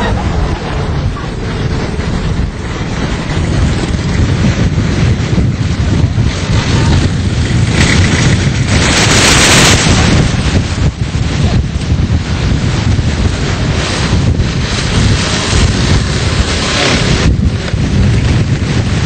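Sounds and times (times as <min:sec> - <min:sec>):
flood water rushing: 0:00.0 - 0:19.0
wind buffeting microphone: 0:00.0 - 0:19.0.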